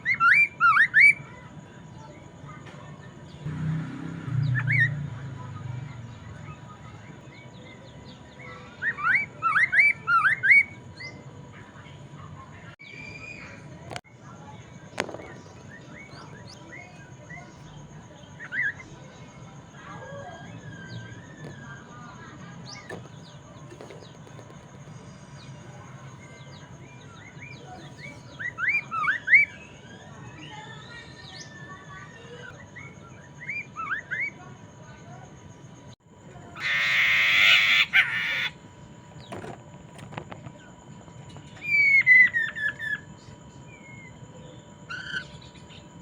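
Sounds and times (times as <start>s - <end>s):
bird singing whistled notes: 0.0s - 1.3s, 12.8s - 13.6s, 41.5s - 45.9s
quiet bird warbling: 40.6s - 46.0s.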